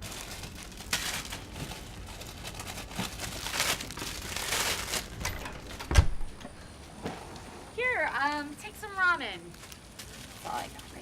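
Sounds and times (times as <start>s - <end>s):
plastic packaging crinkling: 0.0s - 5.8s, 9.4s - 11.0s.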